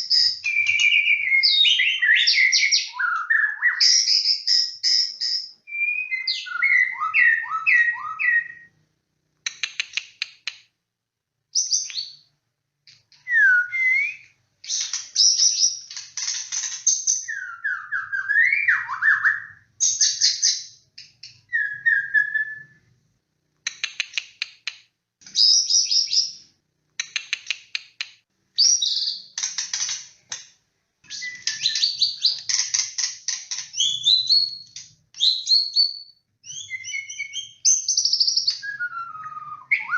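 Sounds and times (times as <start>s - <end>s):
bird singing whistles and trills: 0.0s - 8.7s, 11.6s - 12.3s, 13.1s - 16.0s, 16.9s - 22.8s, 25.4s - 26.4s, 28.6s - 29.4s, 31.1s - 32.6s, 33.7s - 39.9s.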